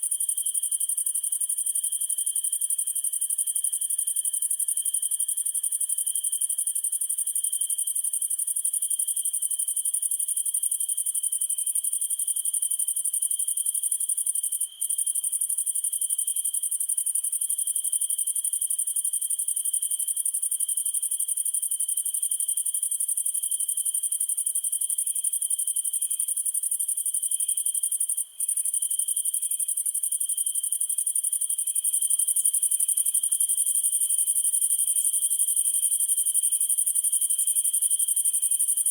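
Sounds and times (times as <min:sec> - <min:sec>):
soft pulsing insect chirp: 0:17.6 - 0:38.9.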